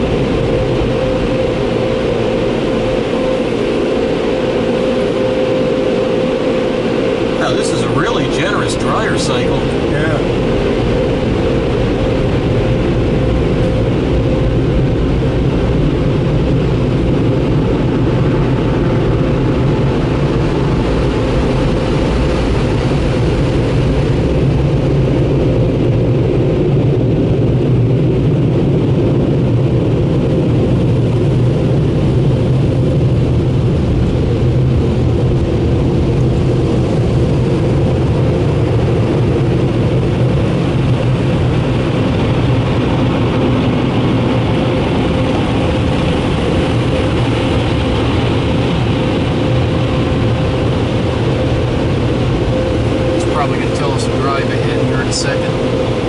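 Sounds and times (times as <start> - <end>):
air-dryer blowers rushing: 0.0 - 15.2, 42.0 - 56.0
low hum: 0.0 - 56.0.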